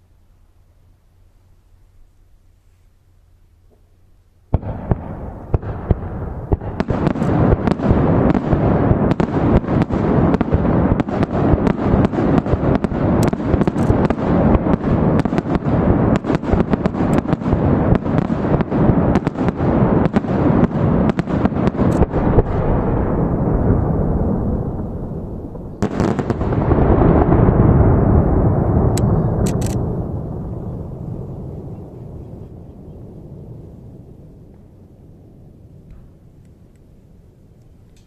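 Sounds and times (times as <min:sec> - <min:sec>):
fireworks bangs and crackle: 0:04.5 - 0:31.7.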